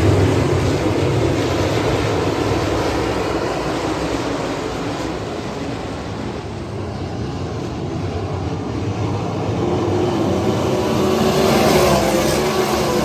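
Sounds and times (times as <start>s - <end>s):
race car engines running: 7.7s - 13.0s.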